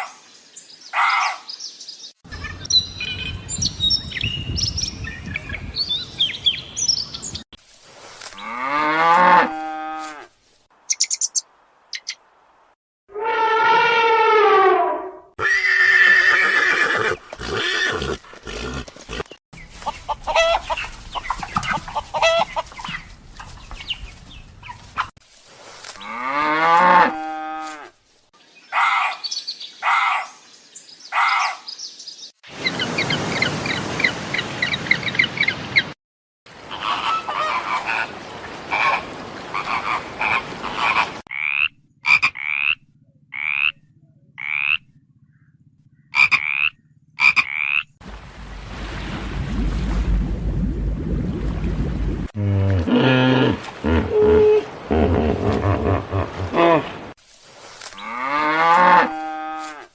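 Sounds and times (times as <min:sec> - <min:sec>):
animal calls: 0:20.0 - 0:23.0, 0:36.7 - 0:38.1, 0:38.7 - 0:47.9, 0:52.8 - 0:57.0.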